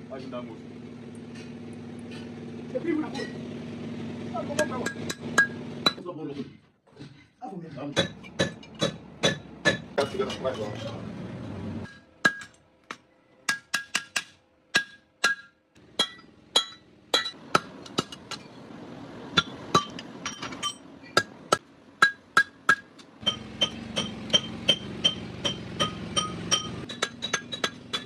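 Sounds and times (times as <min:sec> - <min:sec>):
hammer ringing on anvil: 0:22.0 - 0:28.0.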